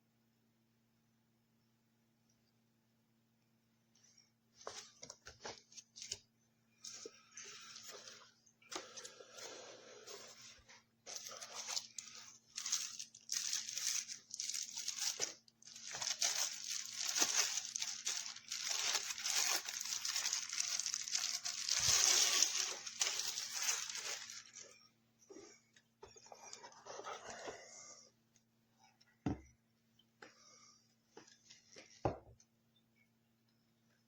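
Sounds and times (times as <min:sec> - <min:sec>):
packaging crinkling: 0:06.8 - 0:24.8.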